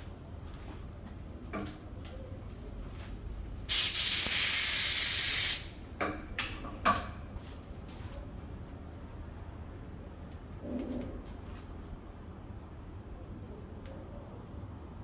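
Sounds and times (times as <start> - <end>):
pressurised spray hissing: 3.7 - 5.8.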